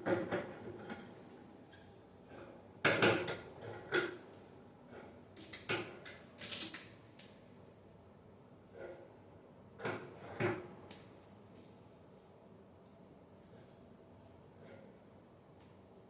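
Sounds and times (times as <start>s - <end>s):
objects knocking and clattering: 2.8s - 4.2s.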